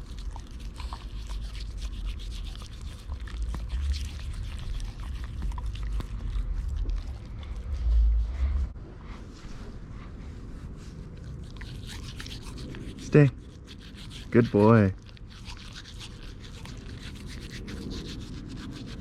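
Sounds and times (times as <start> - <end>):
toothbrush scrubbing teeth: 0.0 - 7.8, 11.2 - 19.0
low rumble: 0.0 - 13.7.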